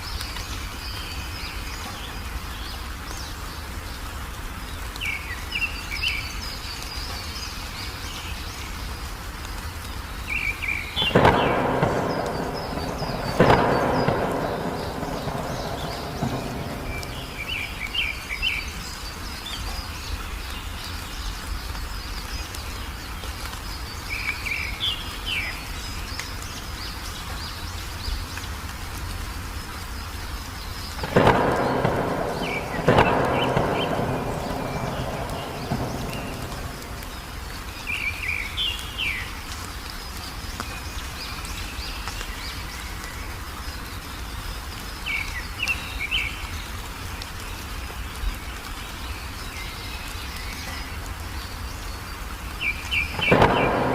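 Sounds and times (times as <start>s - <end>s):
steady rain: 0.0s - 53.9s
bird chirping: 10.2s - 22.8s, 30.6s - 39.4s, 51.8s - 53.9s
thunderclaps rumbling: 11.0s - 18.9s, 31.0s - 38.7s, 52.9s - 53.9s.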